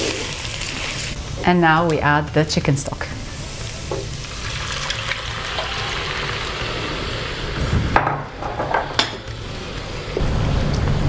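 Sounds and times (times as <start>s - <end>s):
liquid pouring into a pot: 4.2s - 7.6s
kitchenware knocks: 7.9s - 9.2s.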